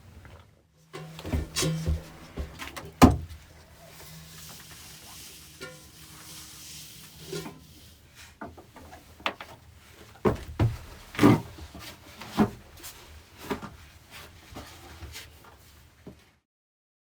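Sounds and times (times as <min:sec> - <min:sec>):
objects knocking and thudding: 0:01.0 - 0:03.4, 0:10.2 - 0:12.7.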